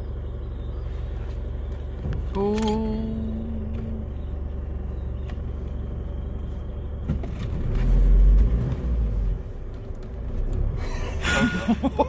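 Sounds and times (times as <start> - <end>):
engine idling hum: 0.0 - 12.0
deep engine swell: 2.2 - 7.0.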